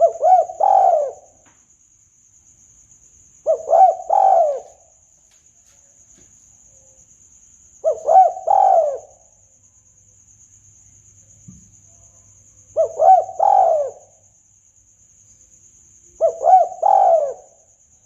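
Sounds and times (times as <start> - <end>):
dove cooing: 0.0 - 1.4, 3.4 - 4.8, 7.8 - 9.2, 12.7 - 14.1, 16.2 - 17.6.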